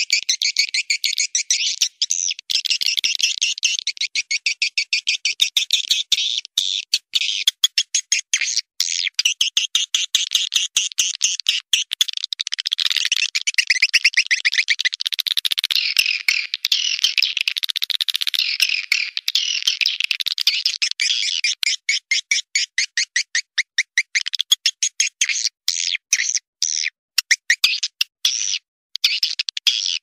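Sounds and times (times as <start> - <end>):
swiftlet twittering chirps: 0.0 - 7.6.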